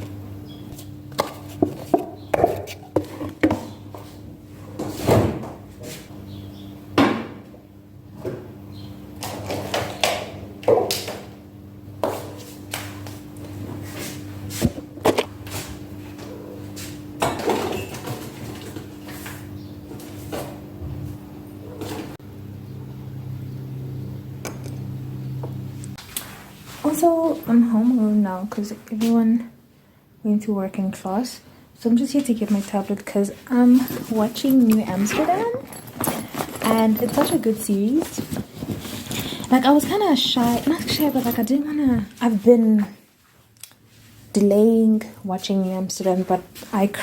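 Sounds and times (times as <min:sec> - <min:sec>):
low electrical hum: 0:00.0 - 0:47.0
household knocks and clatter: 0:33.7 - 0:42.1.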